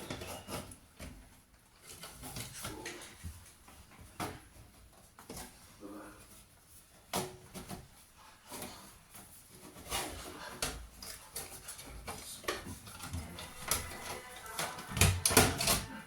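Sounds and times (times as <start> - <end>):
computer parts clicking and knocking: 12.1 - 16.0.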